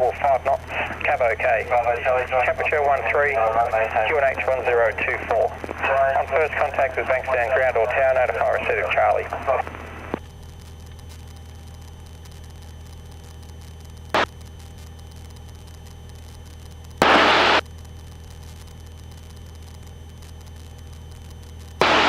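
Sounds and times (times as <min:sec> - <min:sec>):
intercom click: 0:21.8 - 0:22.0.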